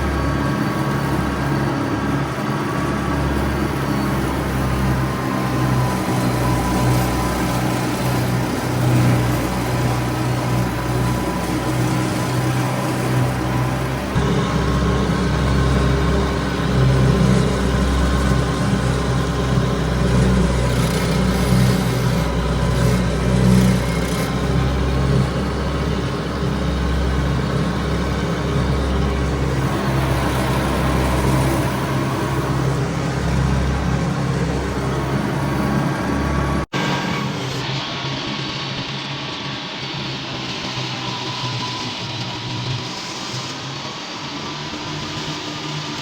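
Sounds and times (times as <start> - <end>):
tractor engine running: 0.0 - 40.8
mower cutting grass: 0.0 - 46.0.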